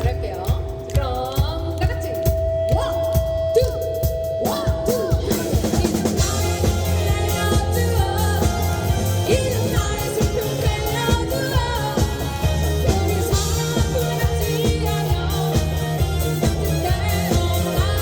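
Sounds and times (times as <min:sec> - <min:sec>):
drum kit: 0:00.0 - 0:18.0
person singing: 0:00.0 - 0:18.0
bass guitar: 0:04.4 - 0:18.0.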